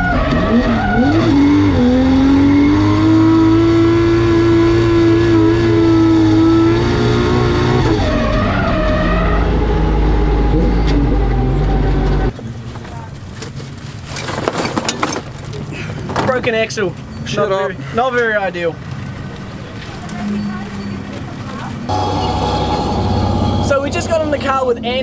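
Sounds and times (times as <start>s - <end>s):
car engine revving: 0.0s - 24.7s
tyre squeal: 12.3s - 23.8s.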